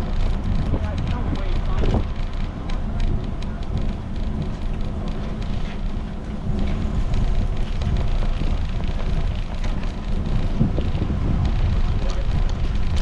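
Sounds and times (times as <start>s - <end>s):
tyres rumbling: 0.0s - 13.0s
wind buffeting microphone: 0.0s - 13.0s.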